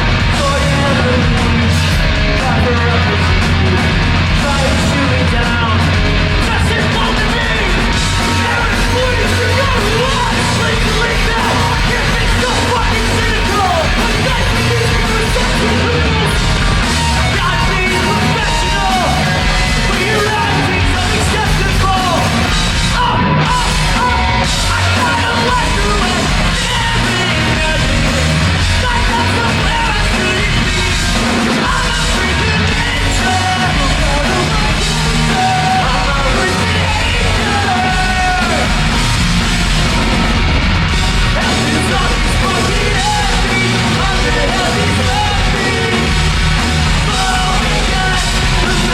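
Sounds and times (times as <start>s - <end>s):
punk rock band playing live: 0.0s - 48.9s
shouted singing: 0.0s - 48.9s.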